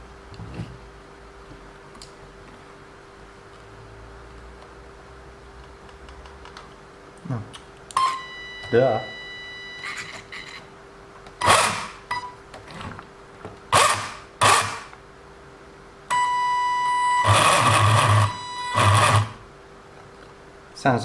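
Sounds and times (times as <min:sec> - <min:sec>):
toy car motor revving: 0:11.4 - 0:12.0, 0:17.2 - 0:19.4
high electronic whine: 0:16.1 - 0:19.4.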